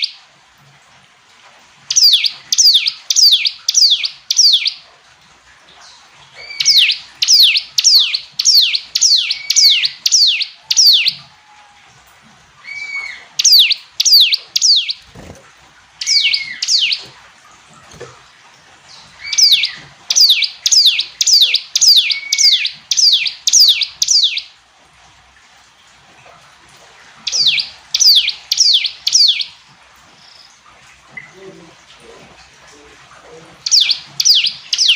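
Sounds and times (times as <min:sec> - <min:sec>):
bird singing sharp downward notes: 0:01.9 - 0:04.8, 0:06.4 - 0:11.2, 0:12.6 - 0:15.3, 0:16.0 - 0:17.2, 0:18.9 - 0:24.5, 0:27.2 - 0:29.5, 0:33.6 - 0:34.9.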